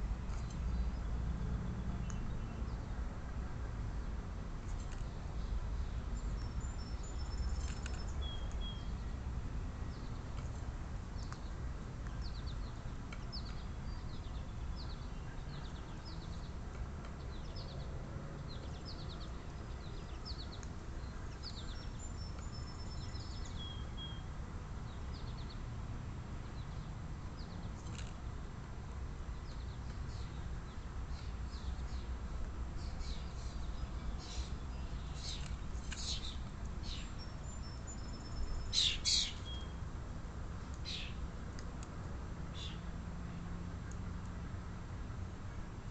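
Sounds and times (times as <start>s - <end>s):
small birds chirping: 4.7s - 9.2s, 11.2s - 24.2s, 32.8s - 39.8s, 40.6s - 41.2s.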